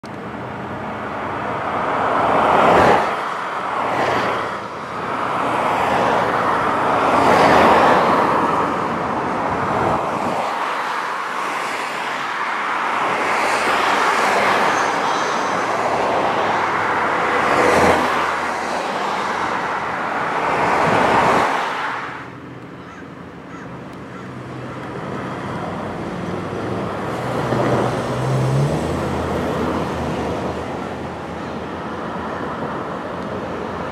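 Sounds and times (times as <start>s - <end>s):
cars passing: 0.0s - 33.9s.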